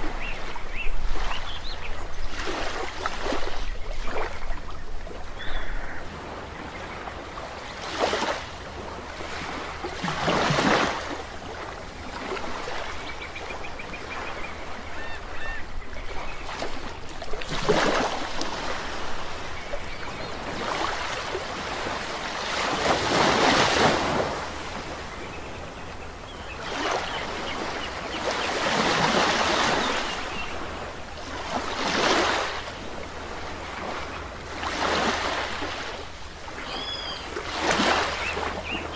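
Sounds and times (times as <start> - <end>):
sea waves breaking on shore: 0.0 - 38.9
faint bird calls: 3.6 - 7.3, 12.8 - 16.6, 36.6 - 37.4.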